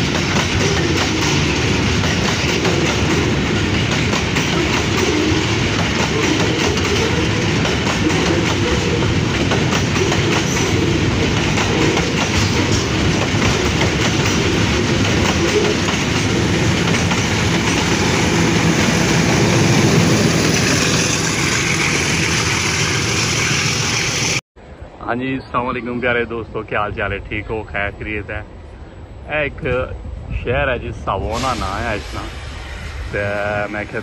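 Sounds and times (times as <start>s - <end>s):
wheels clacking over rail joints: 0.0s - 24.4s
diesel locomotive passing: 0.0s - 34.0s
freight train rumbling past: 0.0s - 34.0s.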